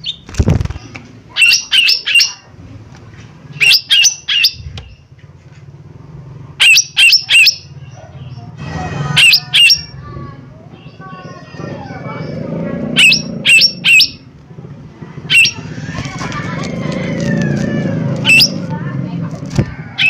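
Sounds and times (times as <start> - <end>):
bird harsh calls: 0.0 - 2.5, 3.5 - 5.0, 6.6 - 14.3, 15.2 - 18.7.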